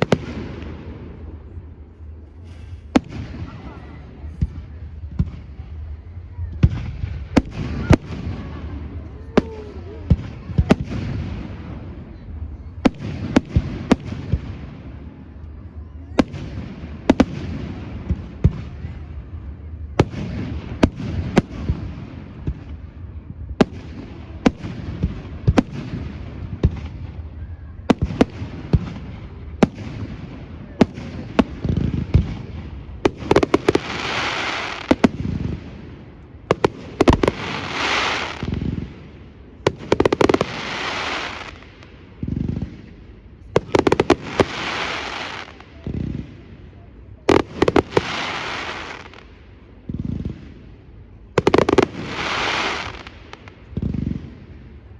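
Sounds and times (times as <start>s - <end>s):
hissing crackling firework bursts: 2.3s - 4.8s, 27.9s - 42.9s, 43.5s - 46.6s, 47.3s - 49.4s, 51.4s - 54.4s.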